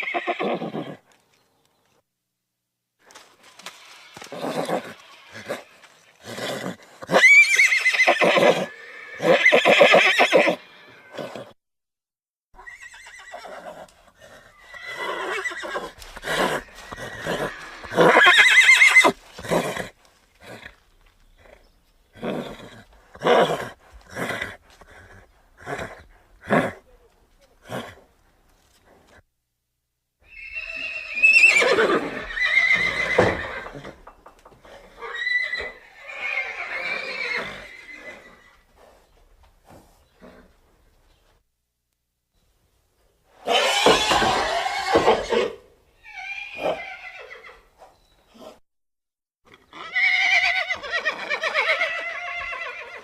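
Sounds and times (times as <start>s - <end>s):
horse neighing: 0.0s - 1.1s, 4.1s - 11.6s, 12.6s - 20.8s, 22.2s - 26.8s, 30.2s - 38.7s, 43.4s - 47.7s, 49.5s - 53.0s
quiet horse sounds: 0.0s - 2.0s, 3.0s - 11.6s, 12.6s - 29.3s, 30.2s - 41.5s, 42.3s - 48.6s.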